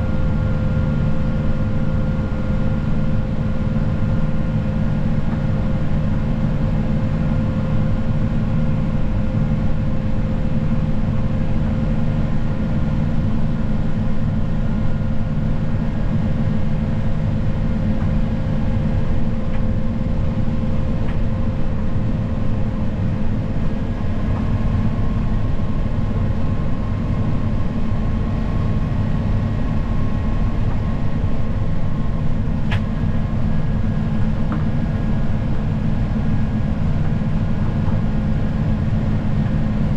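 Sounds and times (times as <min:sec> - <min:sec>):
snow plow engine droning: 0:00.0 - 0:39.9.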